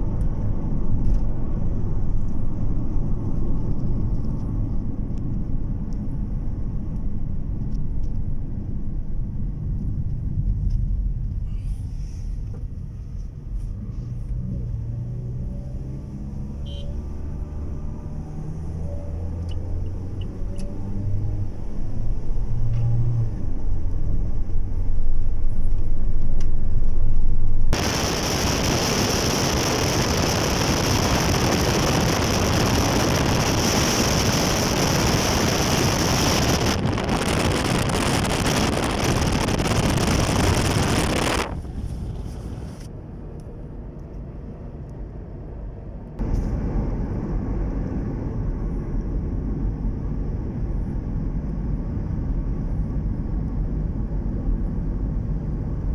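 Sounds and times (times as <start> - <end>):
car road rumble: 0.0 - 55.9
loud steady hiss: 27.8 - 41.6.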